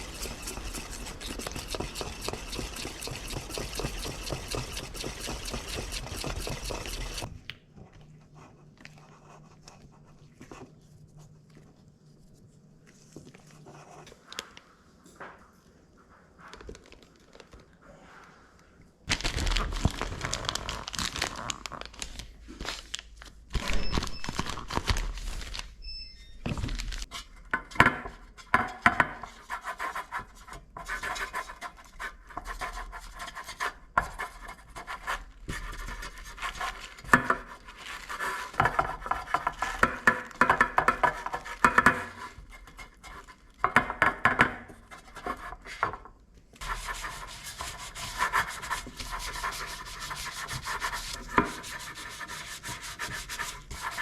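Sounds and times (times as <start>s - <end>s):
irregular scraping and rubbing: 0.0s - 7.3s, 29.1s - 43.7s, 46.6s - 54.0s.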